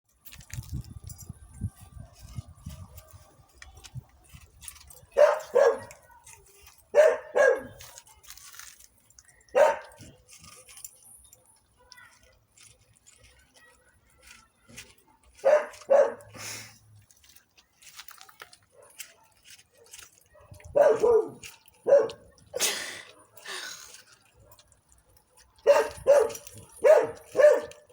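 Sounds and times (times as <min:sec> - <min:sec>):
dog barking: 0:05.2 - 0:06.1, 0:06.9 - 0:07.9, 0:09.5 - 0:10.1, 0:15.4 - 0:16.4, 0:18.7 - 0:22.3, 0:25.6 - 0:27.9.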